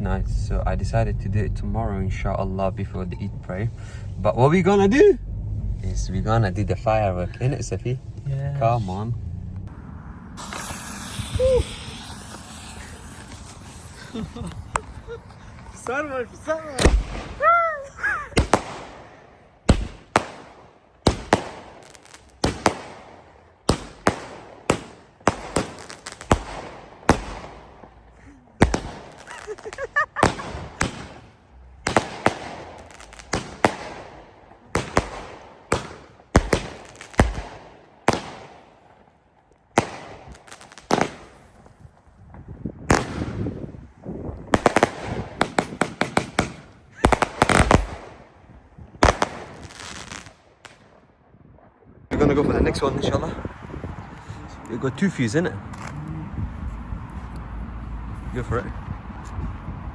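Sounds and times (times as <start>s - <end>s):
firework bangs with crackle: 10.4s - 17.7s, 18.3s - 39.1s, 39.7s - 42.0s, 42.8s - 51.0s.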